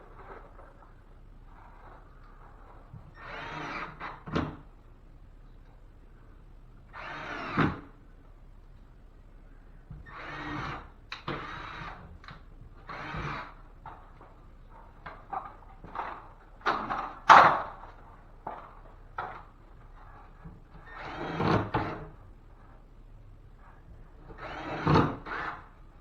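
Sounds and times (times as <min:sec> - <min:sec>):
cordless drill driving screws: 0:03.2 - 0:04.2, 0:06.9 - 0:07.8, 0:10.0 - 0:12.0, 0:12.8 - 0:13.6, 0:20.8 - 0:22.0, 0:24.4 - 0:25.6.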